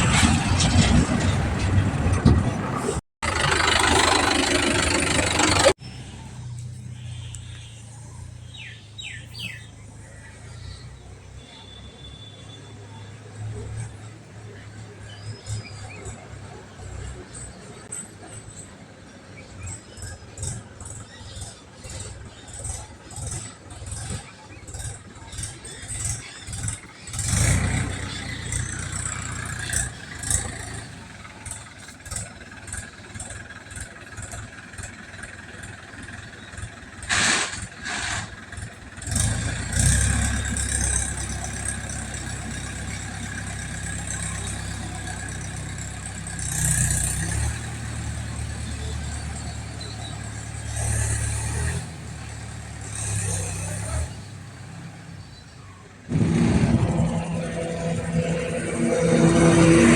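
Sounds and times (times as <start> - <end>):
small engine running: 3.2 - 7.3, 56.1 - 59.9.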